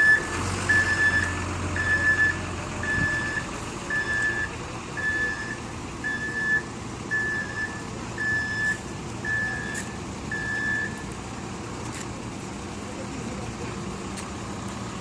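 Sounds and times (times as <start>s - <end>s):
truck reversing alarm beeping: 0.0s - 11.2s
truck engine running: 0.0s - 15.0s.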